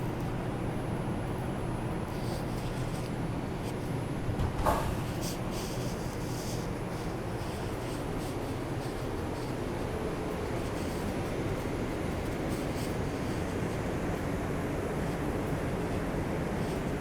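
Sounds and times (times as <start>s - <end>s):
subway car hum and rumble: 3.2s - 7.4s.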